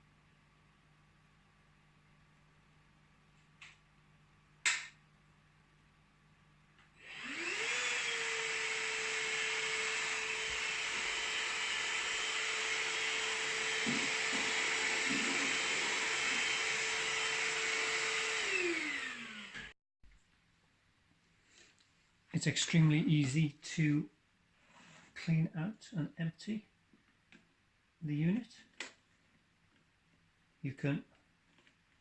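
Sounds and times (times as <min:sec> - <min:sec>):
handheld vacuum motor whine: 0:07.0 - 0:19.8.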